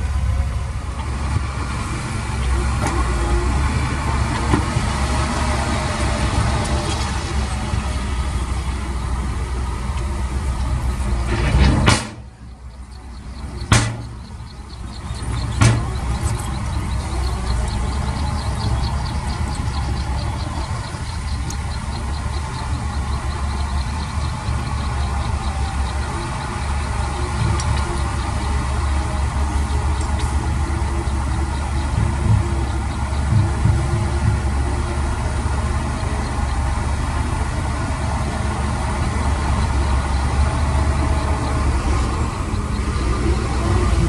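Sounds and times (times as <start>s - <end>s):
heavy diesel engine running: 0.0s - 44.0s
sharp knocks: 11.3s - 12.3s, 13.6s - 14.5s, 15.2s - 16.7s.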